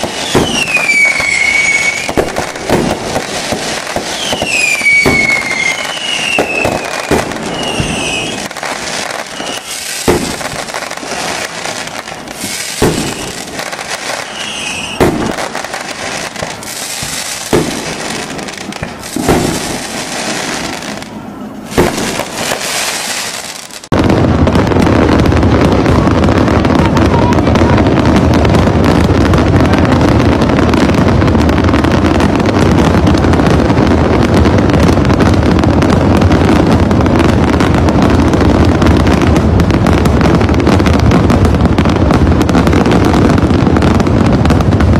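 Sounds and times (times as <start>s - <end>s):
firework whistles: 0.0s - 23.9s
firework shells bursting: 0.0s - 24.0s
firework crackle: 0.0s - 44.9s.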